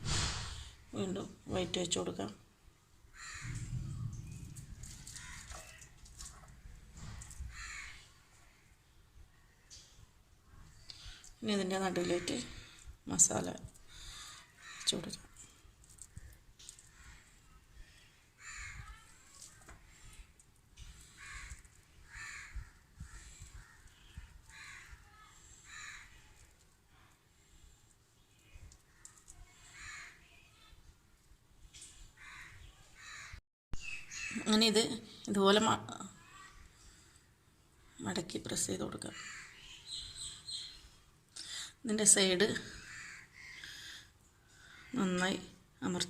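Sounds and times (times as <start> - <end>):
crow cawing: 3.1 - 3.7, 5.0 - 6.3, 7.2 - 8.1, 14.0 - 15.0, 18.4 - 19.1, 21.0 - 26.2, 29.0 - 30.2, 32.2 - 33.4, 39.1 - 40.0, 42.7 - 44.0.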